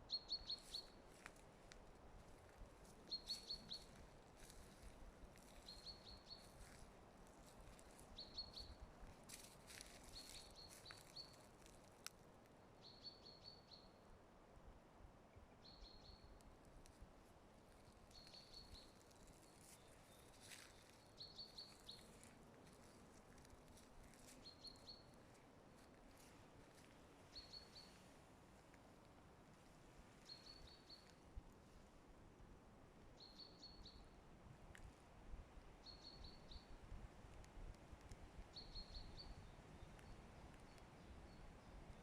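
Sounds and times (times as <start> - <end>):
faint crackles: 17.6 - 30.4.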